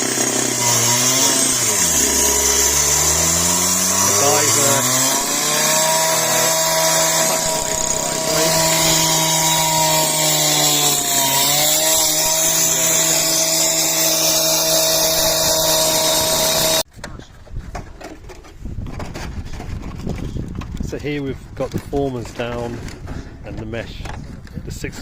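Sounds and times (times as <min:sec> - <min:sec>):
power saw cutting concrete: 0:00.0 - 0:16.9.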